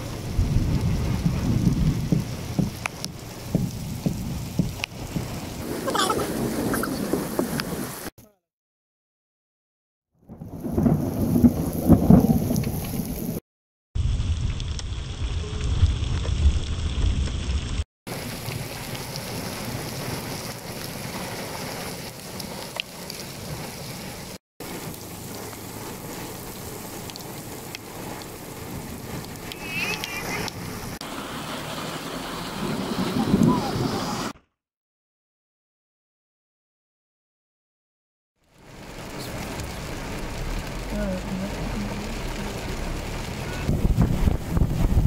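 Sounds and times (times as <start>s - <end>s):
heavy rain pouring on puddles: 0.0s - 8.1s, 10.3s - 13.4s, 14.0s - 34.4s, 38.4s - 45.0s.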